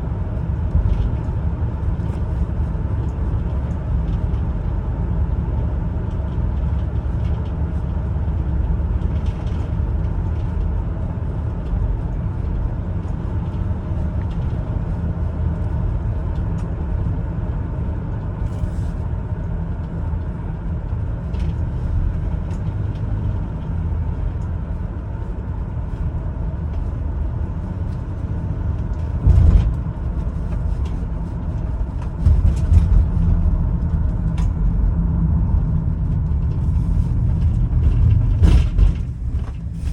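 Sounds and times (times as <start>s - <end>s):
minivan engine and road noise: 0.0s - 39.9s
short loud thumps: 29.2s - 29.8s.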